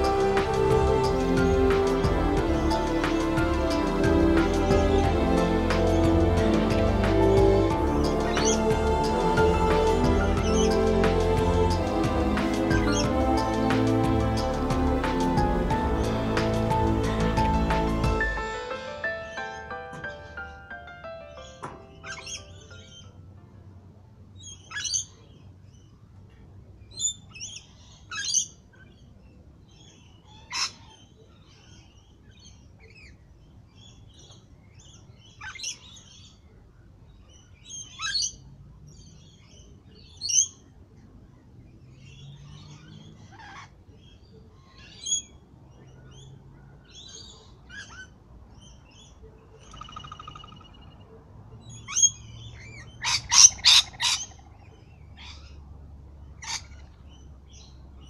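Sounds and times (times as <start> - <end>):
wild birds chirping: 0.0 - 23.2, 26.9 - 58.0.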